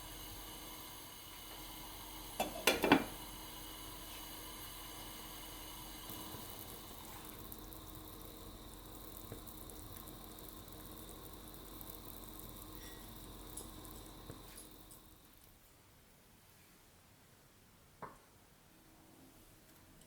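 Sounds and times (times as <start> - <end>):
food sizzling in a frying pan: 0.0 - 15.5.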